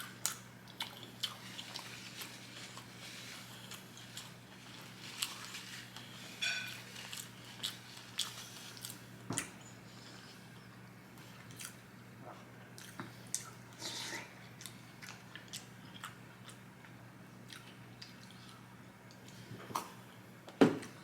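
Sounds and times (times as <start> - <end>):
chewing with wet mouth clicks: 0.0 - 4.4, 6.8 - 9.6, 11.4 - 11.8, 12.8 - 13.6, 14.5 - 19.4.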